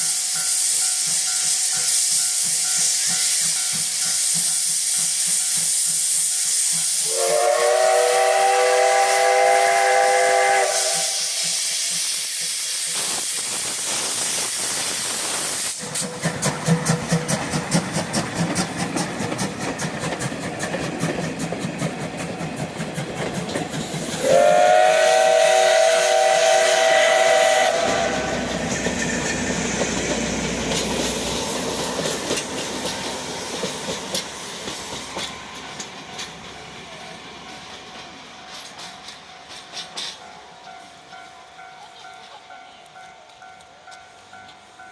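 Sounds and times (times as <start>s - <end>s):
locomotive chuffing and rumbling: 0.0s - 40.6s
steam hissing: 0.0s - 41.1s
steam whistle blasts: 6.3s - 12.1s, 24.2s - 28.5s.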